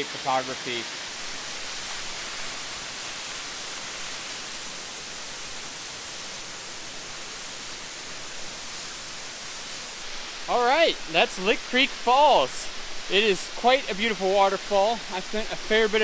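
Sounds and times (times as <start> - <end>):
rush of falling water: 0.0 - 16.0.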